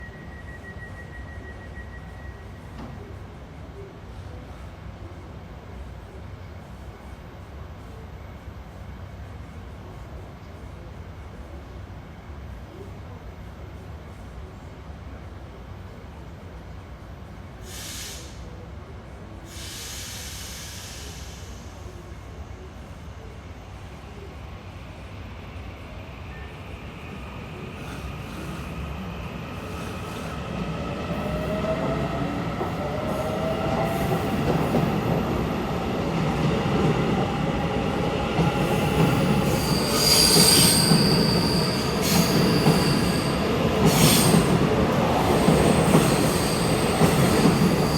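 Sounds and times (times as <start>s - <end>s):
short hisses: 17.6s - 18.4s, 19.5s - 21.8s
wheels rumbling on rail: 26.8s - 47.9s
high-pitched wheel squeals: 39.4s - 44.4s, 45.4s - 47.9s.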